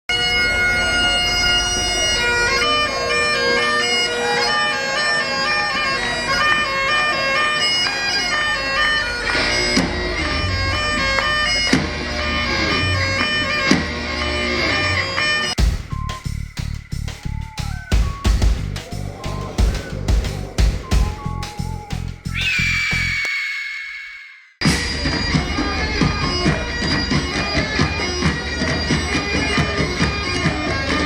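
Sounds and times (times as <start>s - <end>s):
bagpipe melody over drone: 0.1s - 15.6s
drum beats: 15.6s - 24.3s.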